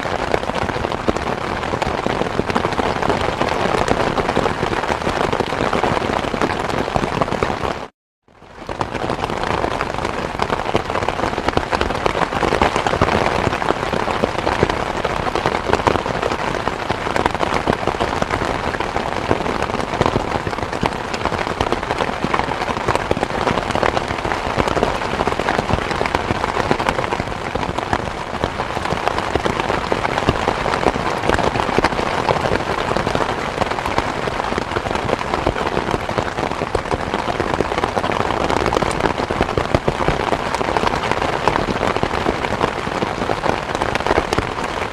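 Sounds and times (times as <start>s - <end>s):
steady rain patter: 0.0s - 44.9s.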